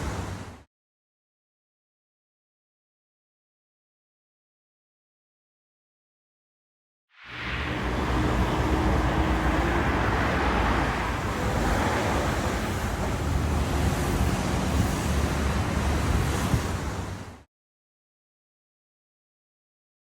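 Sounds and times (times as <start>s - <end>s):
rushing wind: 7.2s - 17.4s
vehicle engine and tyre noise: 7.2s - 17.4s.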